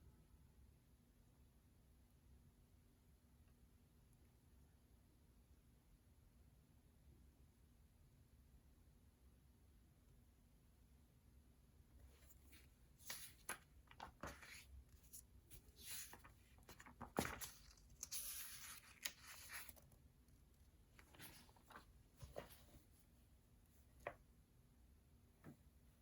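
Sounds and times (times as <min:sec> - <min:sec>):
paper rustling: 0:12.0 - 0:23.1.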